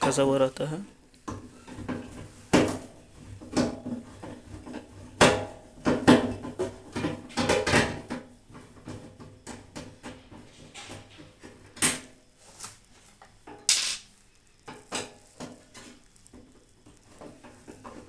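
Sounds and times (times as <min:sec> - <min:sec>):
metal clinks and knocks: 0:13.7 - 0:14.1.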